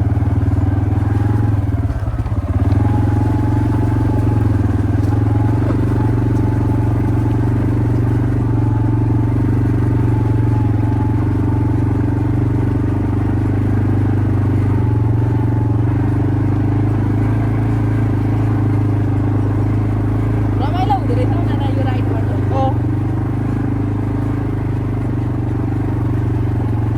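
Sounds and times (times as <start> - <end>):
quad bike engine running: 0.0 - 26.9.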